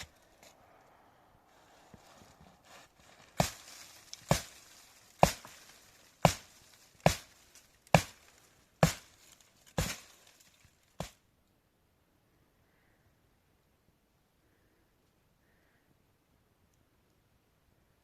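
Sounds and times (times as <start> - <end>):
axe chopping firewood: 0.0 - 0.5, 3.3 - 10.2, 11.0 - 11.2.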